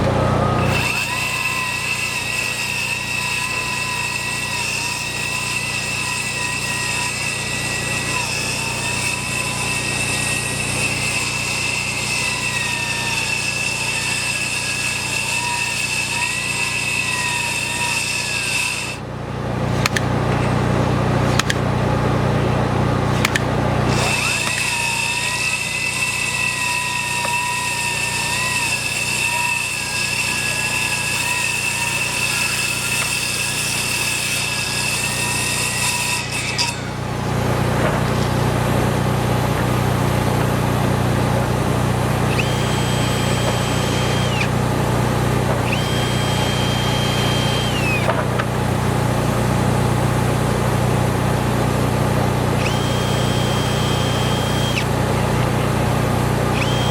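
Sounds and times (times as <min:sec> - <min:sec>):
engine rumble: 0:00.0 - 0:01.0
power tool motor whine: 0:00.0 - 0:56.9.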